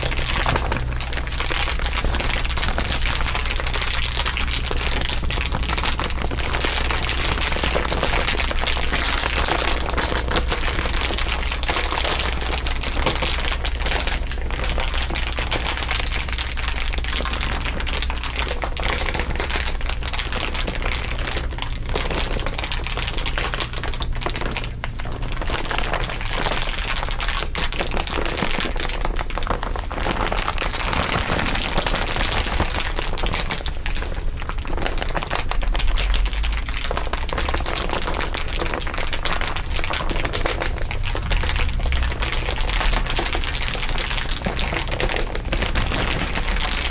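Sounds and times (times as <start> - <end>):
crinkly material crackling: 0.0 - 46.9
low hum: 39.1 - 46.9.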